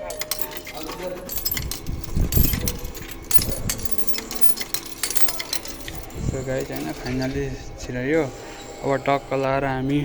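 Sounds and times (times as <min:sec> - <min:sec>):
coins clinking in machine: 0:00.0 - 0:07.5.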